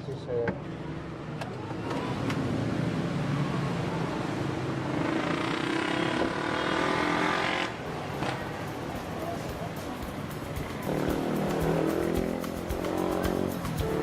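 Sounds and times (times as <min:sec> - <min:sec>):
vehicle engine running: 0:07.9 - 0:14.0.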